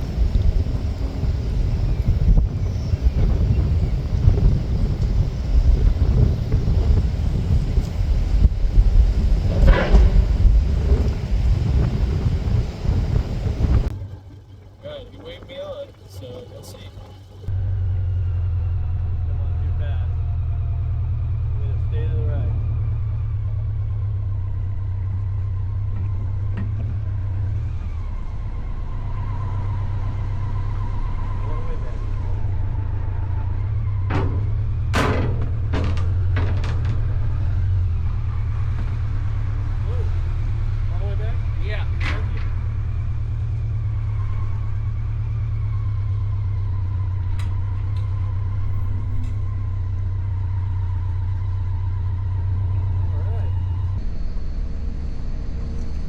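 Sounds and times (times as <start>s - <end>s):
faint steady whine: 0.0s - 17.5s
low engine rumble: 0.0s - 56.0s.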